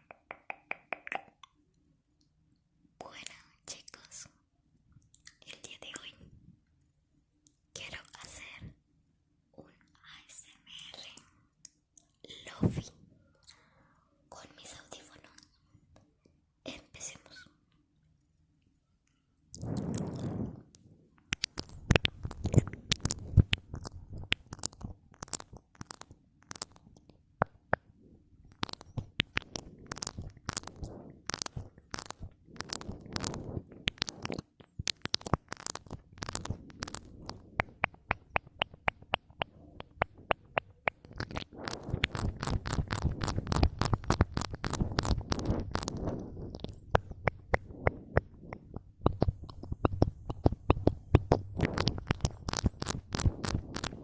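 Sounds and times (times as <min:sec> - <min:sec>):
wet lip and tongue clicks: 0:00.0 - 0:01.6, 0:21.3 - 0:27.9, 0:28.5 - 0:54.0.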